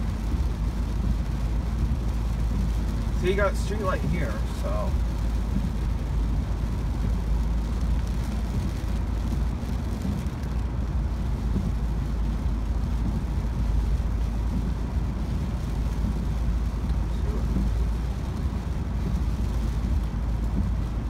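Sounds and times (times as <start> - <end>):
car cabin road noise: 0.0 - 21.0.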